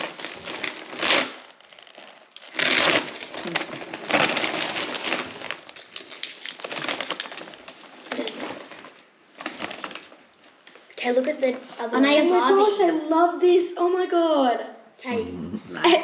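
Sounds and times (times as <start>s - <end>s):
paper tearing: 0.0s - 7.3s
wrapping paper rustling and crinkling: 0.0s - 11.7s.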